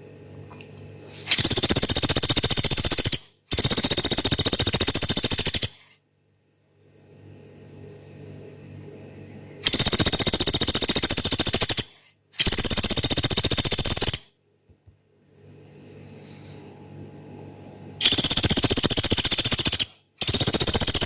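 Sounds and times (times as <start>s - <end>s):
woodpecker rattling trills: 1.3s - 5.8s, 9.7s - 14.2s, 18.0s - 21.0s
faint low hum: 5.8s - 13.2s, 14.2s - 18.9s.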